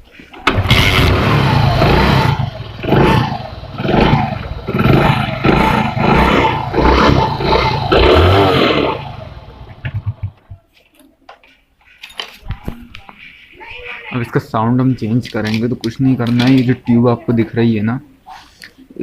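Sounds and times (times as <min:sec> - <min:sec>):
motorcycle engine revving: 0:00.5 - 0:10.4.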